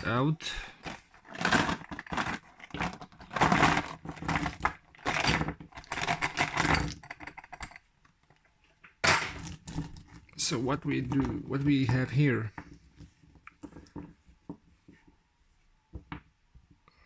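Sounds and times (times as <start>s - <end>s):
plastic toy figures clattering: 0.0s - 8.4s, 9.0s - 14.2s.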